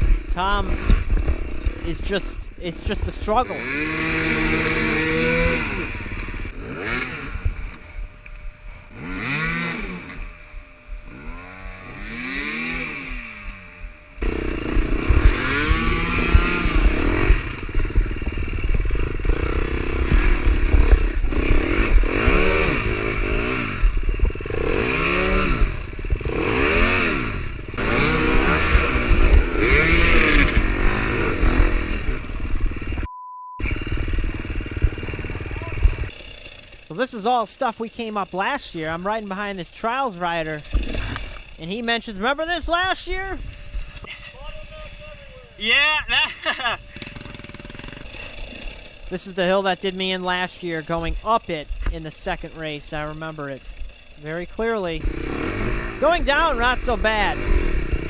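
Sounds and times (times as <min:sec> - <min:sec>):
dirt bike engine revving: 0:00.0 - 0:58.0
short beep tone: 0:33.1 - 0:33.7.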